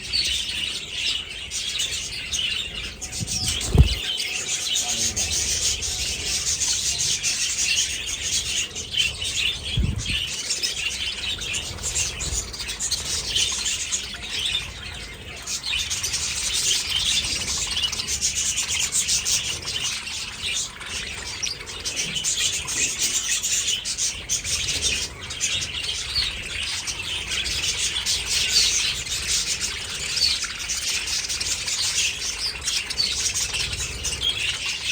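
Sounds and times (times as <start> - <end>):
budgerigars chattering and chirping: 0.0 - 34.9
low thumps: 3.0 - 4.1.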